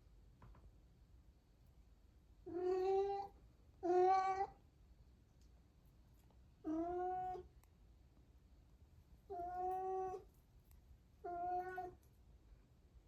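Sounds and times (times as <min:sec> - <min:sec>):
cat meowing: 0:02.5 - 0:04.6, 0:11.2 - 0:12.0.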